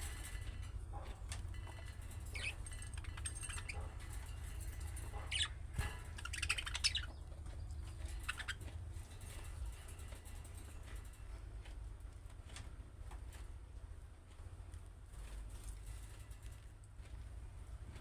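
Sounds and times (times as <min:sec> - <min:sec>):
steady low hum: 0:00.0 - 0:18.0
budgerigars chirping: 0:02.3 - 0:04.1, 0:04.9 - 0:08.6.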